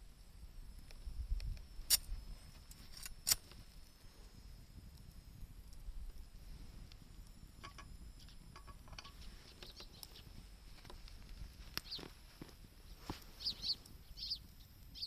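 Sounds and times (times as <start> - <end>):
campfire crackling and popping: 0.0 - 15.0
bird chirping: 9.1 - 10.4, 11.8 - 12.1, 13.2 - 15.0.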